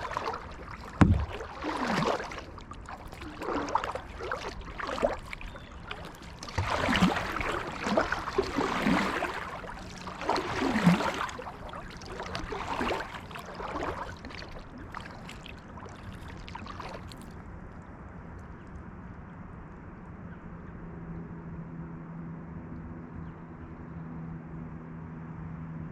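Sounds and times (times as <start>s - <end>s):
water dripping: 0.0s - 15.4s
paddle splashing in water: 0.0s - 17.4s.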